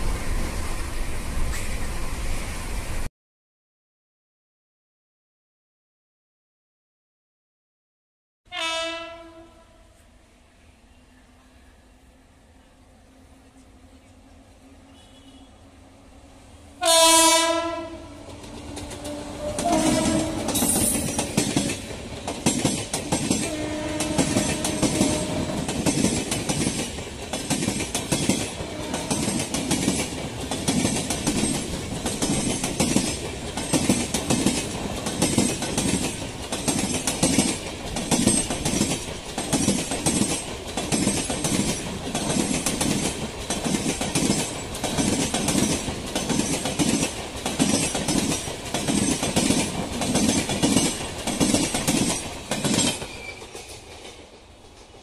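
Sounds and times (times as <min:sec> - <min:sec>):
train horn blast: 0:08.5 - 0:10.0, 0:14.8 - 0:15.8, 0:16.8 - 0:20.8, 0:23.5 - 0:25.6, 0:28.6 - 0:29.3
train wheels clattering over rail joints: 0:18.2 - 0:55.0.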